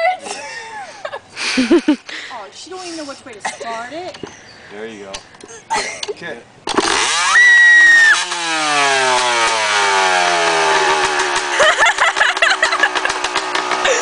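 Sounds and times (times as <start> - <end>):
dirt bike engine revving and idling: 6.7 - 14.0.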